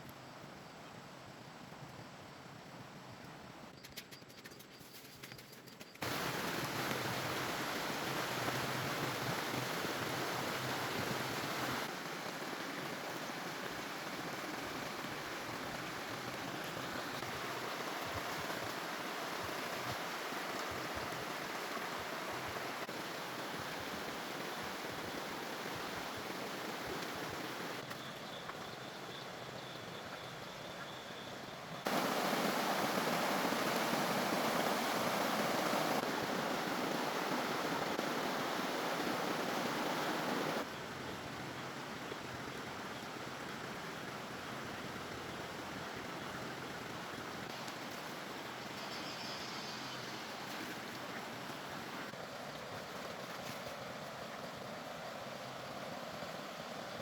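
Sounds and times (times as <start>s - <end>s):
steady rushing noise: 31.9s - 40.7s.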